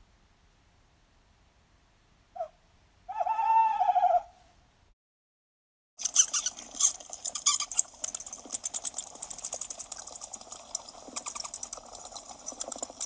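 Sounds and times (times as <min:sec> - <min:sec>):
bats squeaking: 0:06.0 - 0:13.0.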